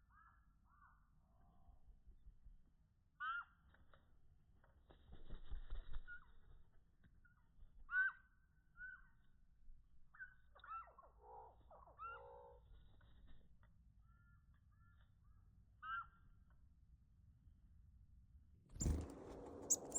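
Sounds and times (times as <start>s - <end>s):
chickadees calling: 19.6s - 19.9s.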